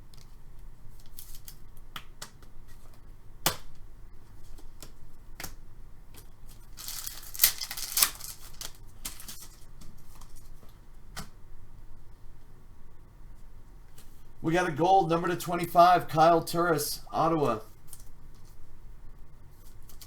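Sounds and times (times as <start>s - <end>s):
pack wrapper tearing: 6.6s - 9.6s.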